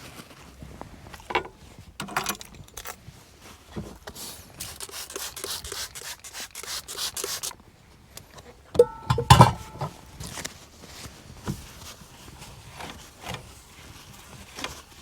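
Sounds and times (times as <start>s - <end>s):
cookware clattering: 8.8s - 10.0s
metal piece ringing: 8.8s - 10.0s.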